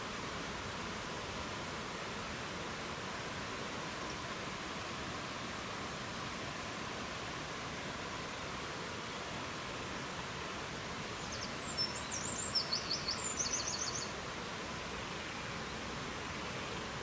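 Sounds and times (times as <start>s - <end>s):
songbird chirps and trill: 11.2s - 14.1s.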